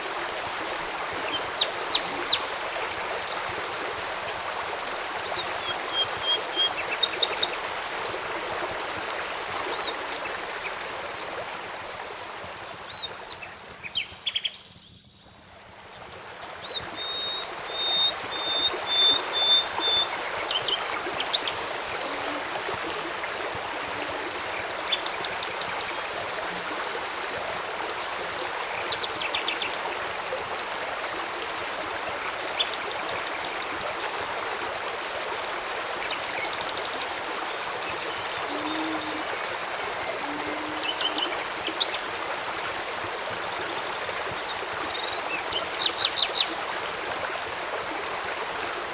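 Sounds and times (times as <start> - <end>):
stream flowing: 0.0 - 14.3, 15.6 - 48.9
birds whistling: 17.0 - 22.6.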